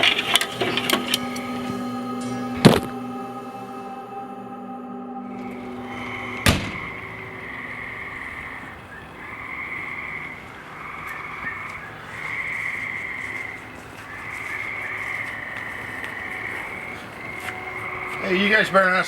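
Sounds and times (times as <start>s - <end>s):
sharp bang: 0.0s - 8.2s
night chorus of calling animals: 0.0s - 19.0s.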